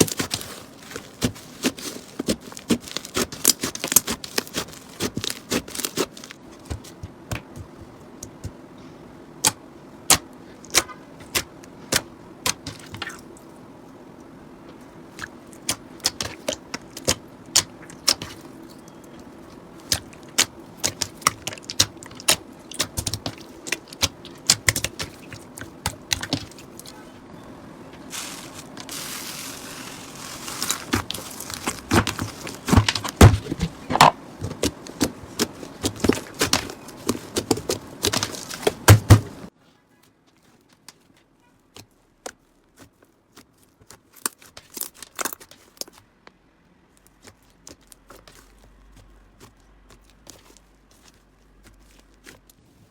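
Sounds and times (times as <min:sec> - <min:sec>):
soft crackly rustle: 0:00.0 - 0:09.0, 0:27.9 - 0:52.9.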